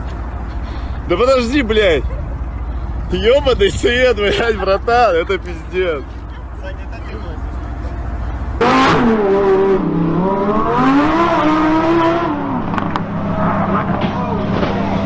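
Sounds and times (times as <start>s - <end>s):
car engine revving: 6.8s - 15.0s.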